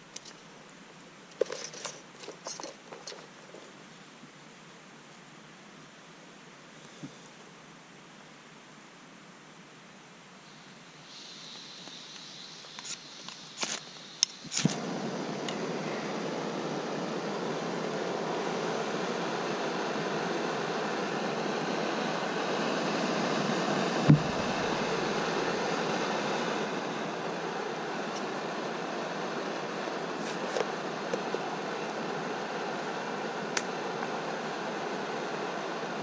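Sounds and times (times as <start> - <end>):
gas stove burning hiss: 10.4 - 36.0.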